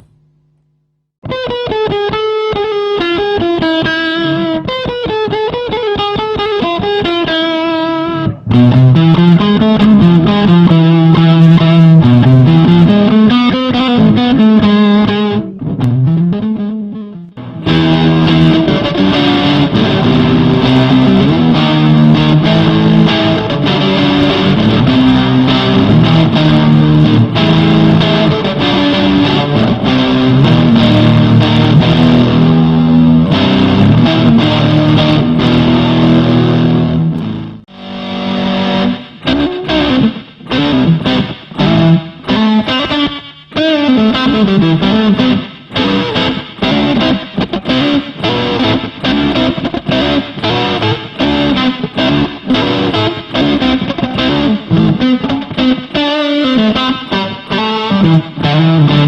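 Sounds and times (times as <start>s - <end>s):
distorted electric guitar riffing: 0.0s - 0.2s, 1.2s - 59.0s.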